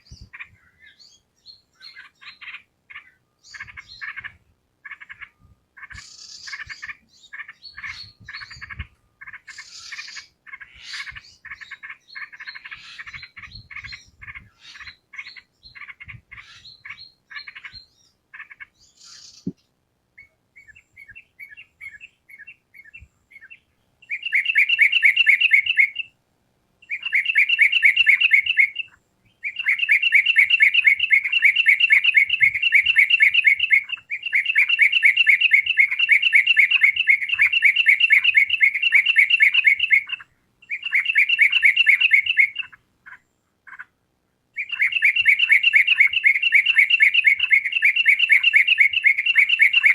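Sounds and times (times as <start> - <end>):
bulbul chattering chirps: 0.0 - 26.1
bird fast trills: 1.8 - 19.5, 26.8 - 43.9, 44.6 - 49.9.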